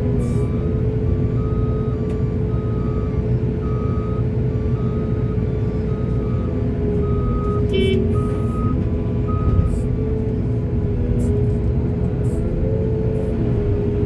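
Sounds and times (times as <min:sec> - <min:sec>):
diesel machinery engine running: 0:00.0 - 0:14.0
reversing alarm beeping: 0:01.4 - 0:09.8.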